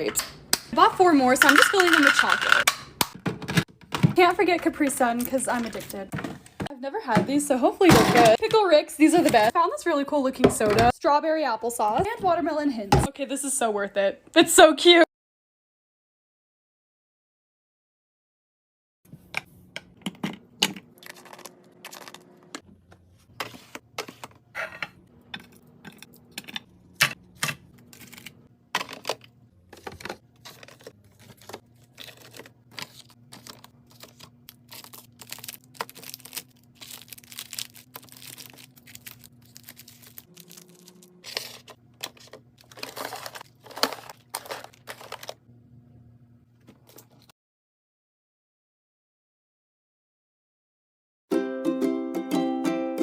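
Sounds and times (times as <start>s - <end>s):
plastic packaging crinkling: 27.9s - 45.4s.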